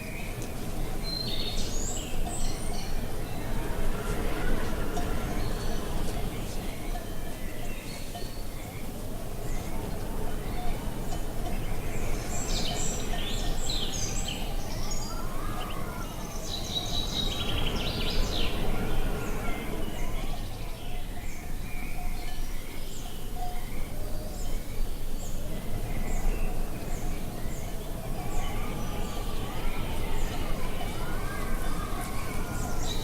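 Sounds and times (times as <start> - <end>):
birds chirping and singing: 0.0 - 33.0
wind rumble: 8.6 - 21.7.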